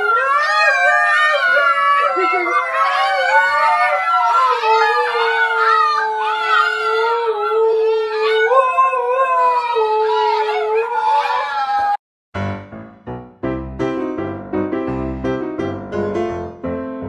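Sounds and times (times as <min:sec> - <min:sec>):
low dog howl: 0:00.0 - 0:12.0.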